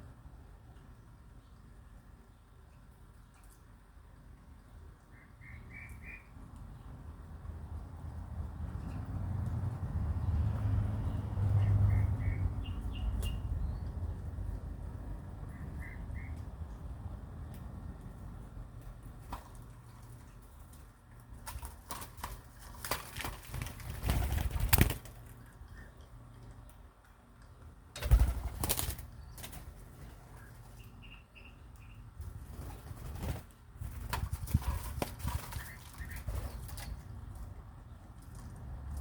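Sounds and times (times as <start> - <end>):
high bird chirp: 5.2 - 6.3
birds flapping wings: 19.2 - 25.4, 28.0 - 30.8, 32.2 - 37.1.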